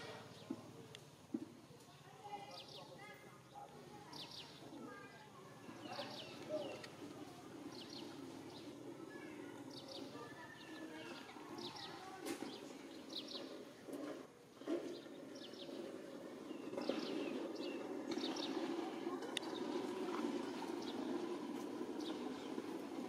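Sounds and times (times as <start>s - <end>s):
bird chirping: 2.5s - 7.0s, 7.6s - 13.6s, 14.8s - 22.7s.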